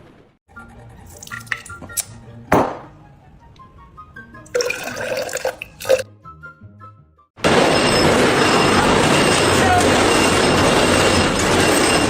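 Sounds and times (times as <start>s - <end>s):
background music: 0.5s - 7.3s
noisy clattering: 7.4s - 12.0s.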